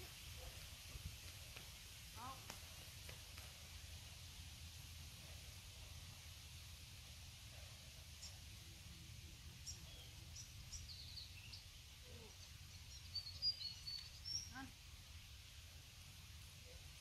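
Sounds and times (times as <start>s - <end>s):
birds chirping: 9.6s - 14.8s.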